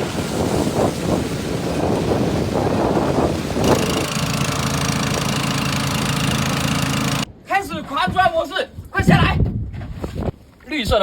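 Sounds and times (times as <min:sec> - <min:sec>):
surf washing in: 0:00.0 - 0:07.3
wind buffeting microphone: 0:00.0 - 0:11.0
small water pump engine: 0:03.3 - 0:07.3.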